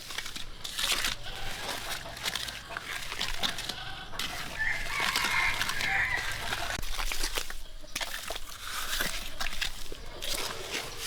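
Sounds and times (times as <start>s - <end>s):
rooster crowing: 3.2s - 6.8s.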